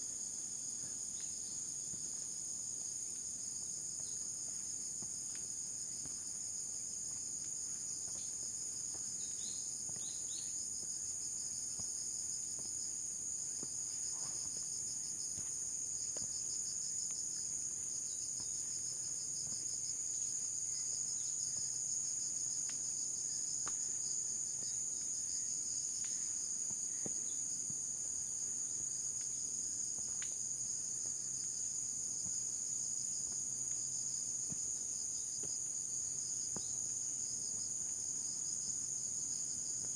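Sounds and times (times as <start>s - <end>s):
insects chorus: 0.0s - 39.9s
faint ticks: 23.6s - 23.9s.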